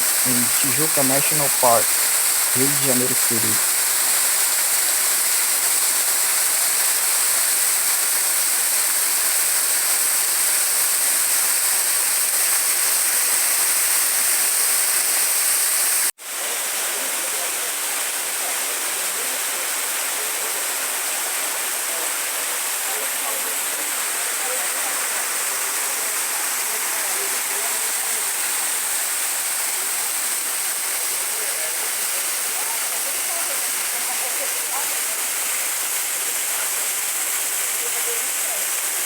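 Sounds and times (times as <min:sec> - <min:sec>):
waterfall rushing: 0:00.0 - 0:06.0.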